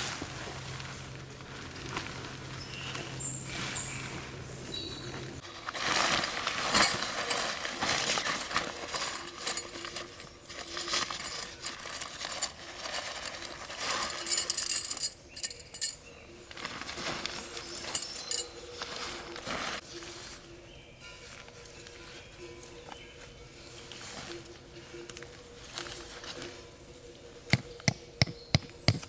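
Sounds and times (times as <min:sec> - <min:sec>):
metal cooking gear clinking: 0:08.8 - 0:16.0, 0:17.8 - 0:18.5.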